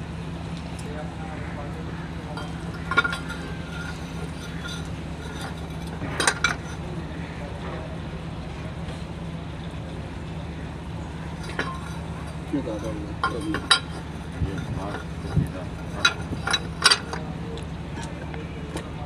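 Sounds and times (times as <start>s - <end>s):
steady low hum: 0.0s - 19.0s
metal tools clinking: 2.4s - 6.8s, 11.2s - 17.4s.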